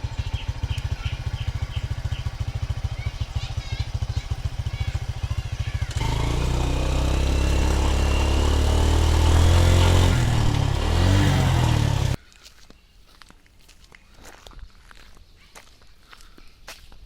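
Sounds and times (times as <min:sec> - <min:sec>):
vehicle engine revving: 0:05.7 - 0:12.2.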